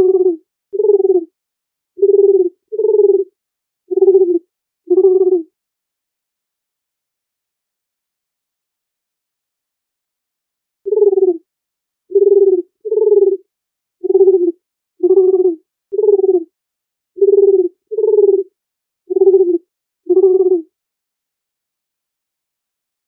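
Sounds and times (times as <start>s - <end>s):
dove cooing: 0.0s - 1.3s, 2.0s - 3.3s, 3.9s - 5.5s, 10.9s - 11.4s, 12.1s - 13.4s, 14.0s - 16.5s, 17.2s - 18.5s, 19.1s - 20.7s.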